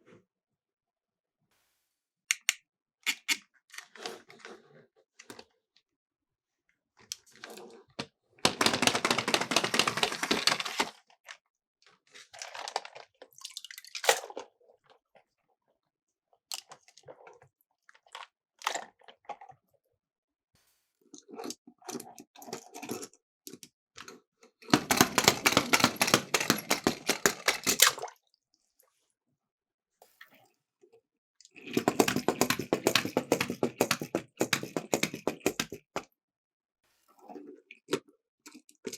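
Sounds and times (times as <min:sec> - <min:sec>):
toy cars rattling down a slope: 0:08.4 - 0:11.0, 0:24.7 - 0:28.0, 0:31.6 - 0:36.0
small clicks and knocks: 0:23.5 - 0:28.0, 0:31.6 - 0:36.0.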